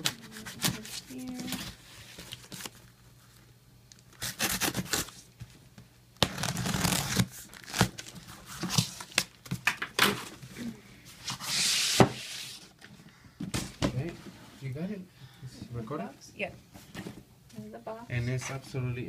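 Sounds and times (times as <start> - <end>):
cardboard rustling: 0.0 - 2.8
packing tape tearing off box: 0.0 - 2.8, 4.1 - 5.3, 6.2 - 9.4.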